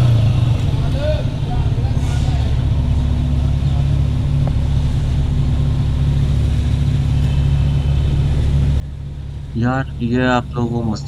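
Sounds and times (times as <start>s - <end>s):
motorcycle engine running: 0.0s - 9.0s
road and wind noise: 0.0s - 11.0s.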